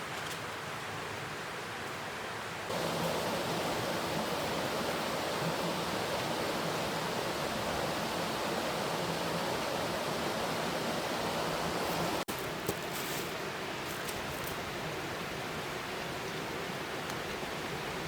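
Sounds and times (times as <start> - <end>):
steady rushing noise: 2.7 - 12.3.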